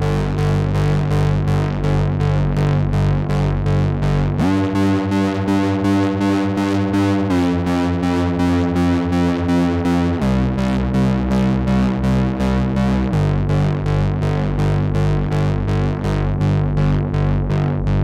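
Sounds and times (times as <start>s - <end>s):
pulsing synthesizer tone: 4.4s - 16.2s.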